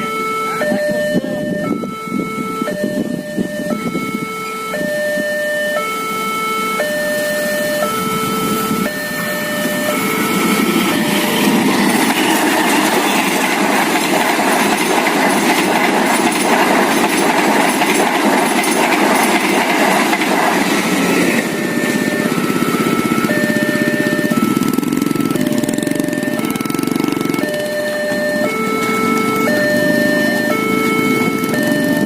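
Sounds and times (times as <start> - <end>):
level crossing two-tone alarm: 0.0 - 32.0
train wheels clattering on rails: 9.6 - 32.0.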